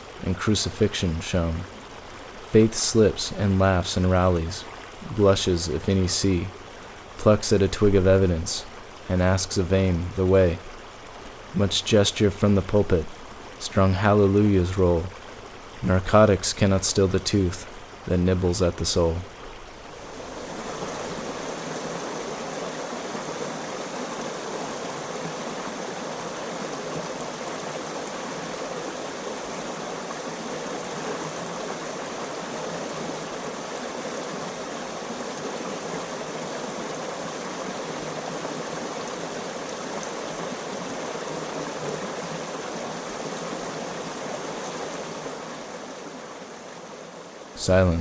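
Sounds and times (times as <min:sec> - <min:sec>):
stream water running: 0:00.0 - 0:48.0.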